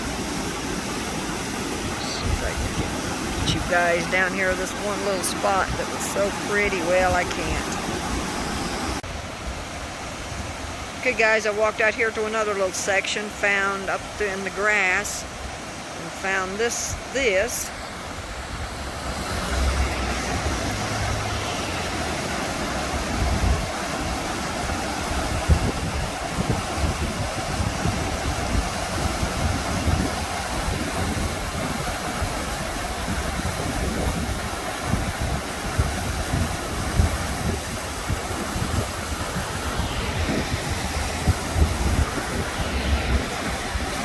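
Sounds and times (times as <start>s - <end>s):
mountain river rushing: 0.0s - 44.0s
wind buffeting microphone: 1.9s - 9.0s, 18.2s - 44.0s.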